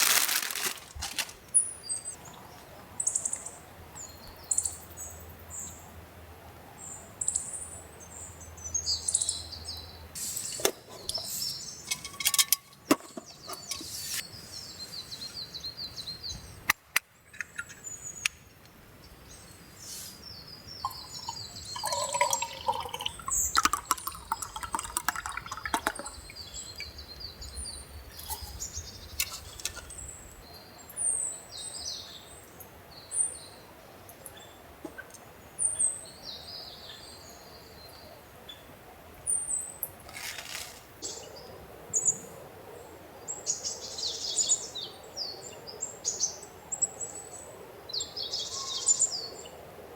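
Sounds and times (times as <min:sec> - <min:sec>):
small birds chirping: 0:01.4 - 0:05.9, 0:06.8 - 0:40.0.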